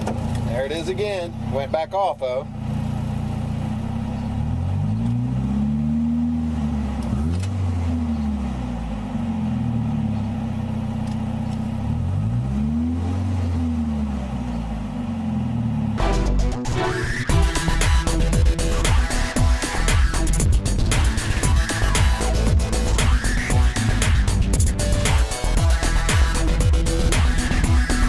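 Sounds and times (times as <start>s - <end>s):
vehicle engine while driving: 0.0s - 28.0s
music: 16.0s - 28.0s.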